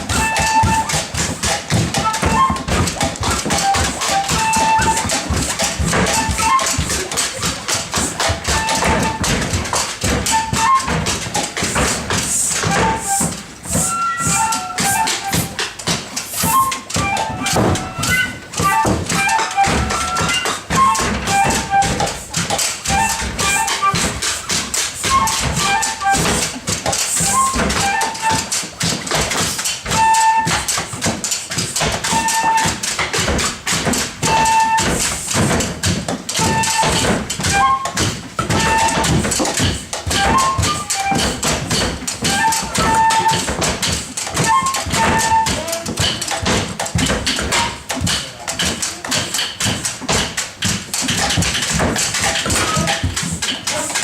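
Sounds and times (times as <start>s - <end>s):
rapid percussive taps and knocks: 0.0s - 54.0s
whistle playing short piping notes: 0.1s - 5.1s, 5.8s - 6.9s, 10.3s - 11.0s, 12.5s - 15.6s, 16.3s - 22.1s, 22.9s - 24.0s, 25.0s - 26.4s, 27.2s - 28.5s, 29.9s - 30.7s, 32.1s - 32.8s, 34.3s - 35.0s, 36.4s - 38.0s, 38.6s - 39.1s, 40.1s - 41.5s, 42.2s - 43.5s, 44.4s - 45.6s.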